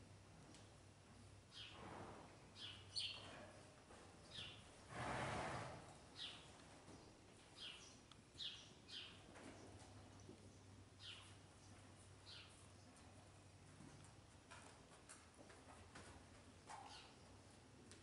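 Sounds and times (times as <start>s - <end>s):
small birds chirping: 1.5s - 1.8s, 2.5s - 3.3s, 4.2s - 4.7s, 6.0s - 14.1s, 16.6s - 17.6s.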